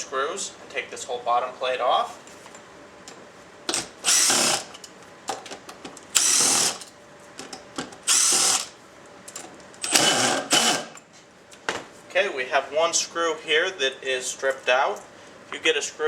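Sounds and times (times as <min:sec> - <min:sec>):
power drill running: 0:03.7 - 0:04.8, 0:06.2 - 0:06.9, 0:08.0 - 0:08.8, 0:09.8 - 0:11.0.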